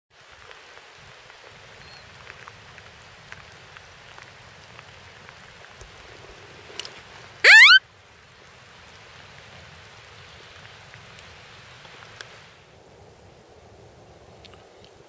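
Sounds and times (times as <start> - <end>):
outdoor background hiss: 0.1 - 15.0
high chirp: 7.4 - 7.8
faint ticks and clicks: 10.6 - 12.4, 14.4 - 15.0.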